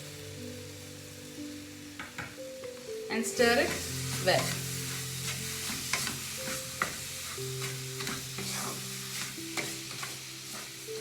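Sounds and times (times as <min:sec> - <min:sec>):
soft background music: 0:00.0 - 0:11.0
steady sizzle in a pan: 0:00.0 - 0:11.0
spoon scraping a pan: 0:03.5 - 0:11.0.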